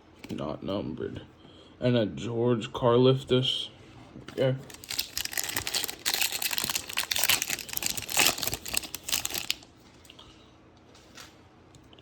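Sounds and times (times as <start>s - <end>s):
plastic wrapper crinkling and tearing: 4.6s - 9.7s.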